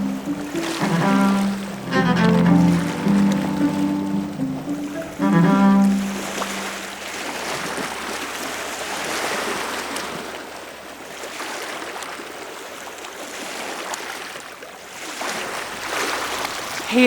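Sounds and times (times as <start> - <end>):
running water rushing: 0.0 - 8.2.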